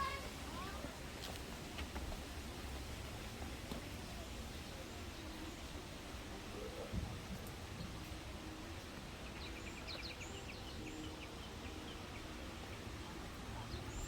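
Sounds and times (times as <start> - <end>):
outdoor background noise: 0.0 - 14.0
small bird singing: 9.2 - 14.0.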